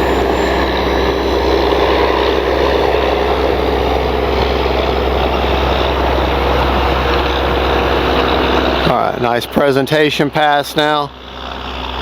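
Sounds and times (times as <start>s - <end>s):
model airplane motor and propeller: 0.0s - 12.0s.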